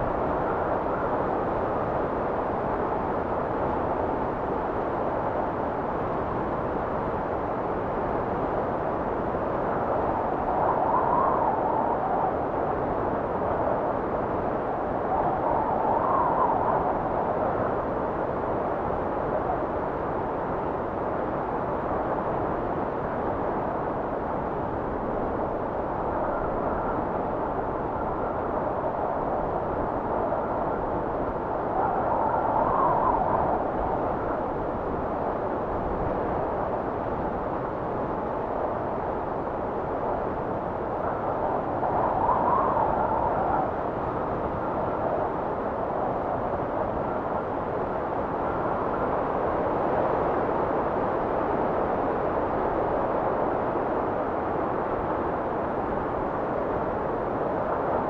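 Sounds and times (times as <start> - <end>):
blizzard wind blowing: 0.0 - 58.0.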